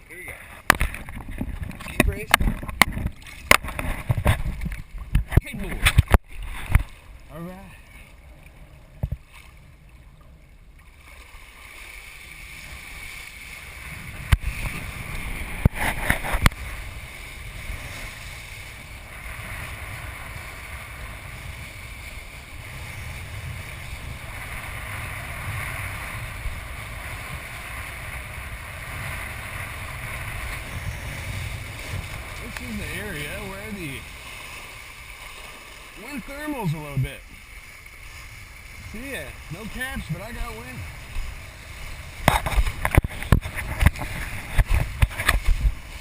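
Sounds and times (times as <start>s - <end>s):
wind on microphone: 0.2s - 7.3s, 12.4s - 37.3s, 38.1s - 46.0s.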